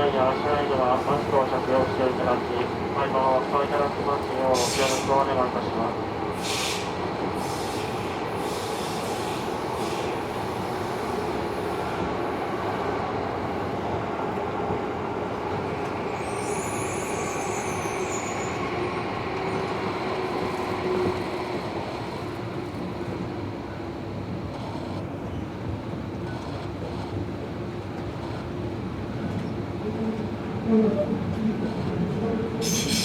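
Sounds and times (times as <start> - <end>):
train wheels rumbling on rail: 0.0 - 33.0
high wheel squeal: 32.6 - 33.0.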